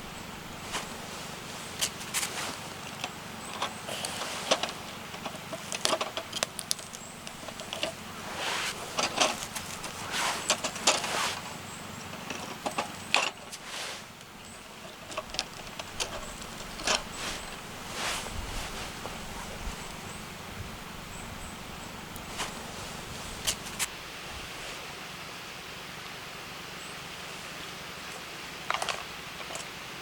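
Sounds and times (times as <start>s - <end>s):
rustling of handled things: 0.0s - 25.0s, 27.2s - 29.8s
low background hum: 0.0s - 30.0s
objects handled clicking and knocking: 0.5s - 20.1s, 22.1s - 23.9s, 28.1s - 29.8s.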